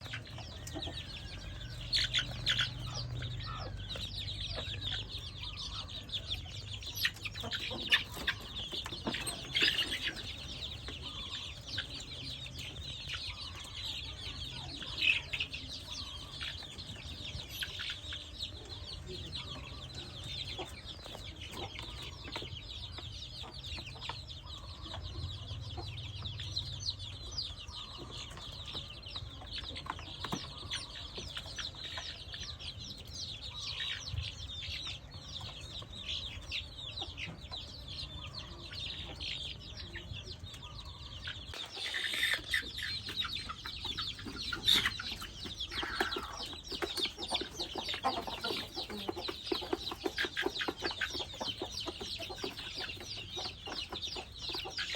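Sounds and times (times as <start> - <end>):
young chickens cheeping: 0.0 - 54.9.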